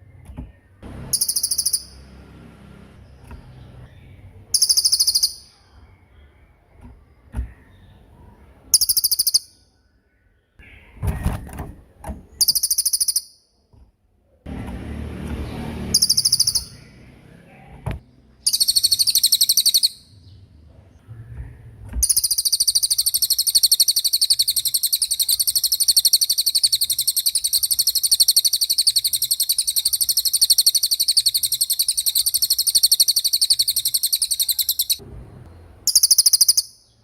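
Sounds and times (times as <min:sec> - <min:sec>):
songbird high rapid trills: 0:00.9 - 0:02.2, 0:15.8 - 0:17.0
low rumbling noise: 0:35.0 - 0:35.9.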